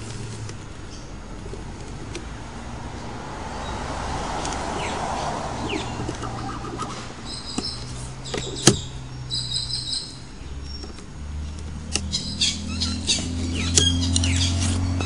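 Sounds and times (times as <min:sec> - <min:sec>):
birds chirping: 0:02.4 - 0:15.0.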